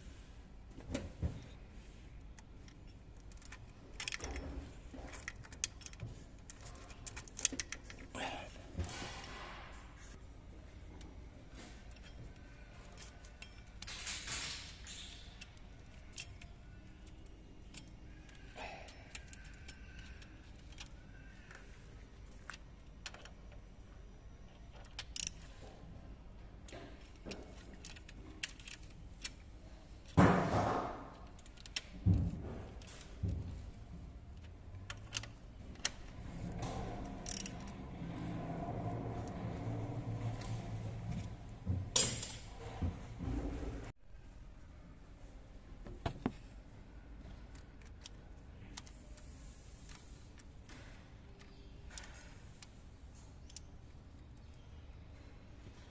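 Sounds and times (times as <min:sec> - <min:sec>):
metal tools clinking and rattling: 0:11.6 - 0:21.6, 0:41.9 - 0:42.7.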